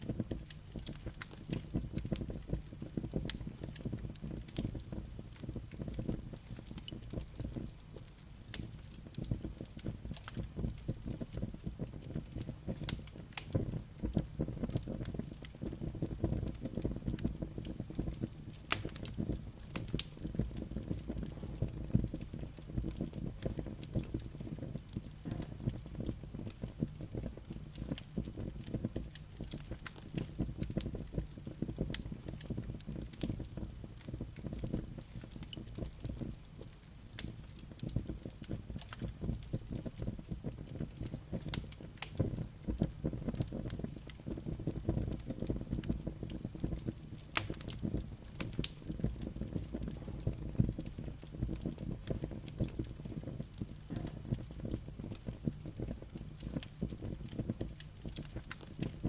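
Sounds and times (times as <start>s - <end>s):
fireplace flames rumbling: 0.0s - 59.0s
logs crackling and popping: 0.0s - 59.0s.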